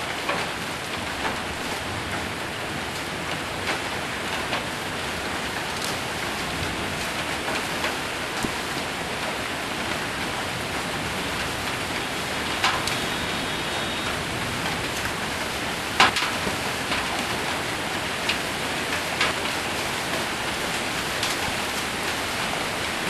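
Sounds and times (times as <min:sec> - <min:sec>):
heavy rain on roof: 0:00.0 - 0:23.0
hailstones striking: 0:00.3 - 0:23.0.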